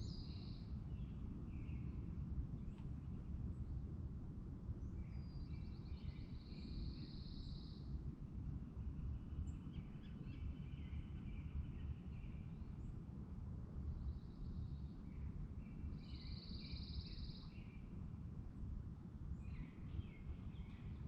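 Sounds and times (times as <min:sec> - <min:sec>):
songbirds singing: 0:00.0 - 0:02.8, 0:09.0 - 0:13.0, 0:14.0 - 0:18.0, 0:19.4 - 0:21.0.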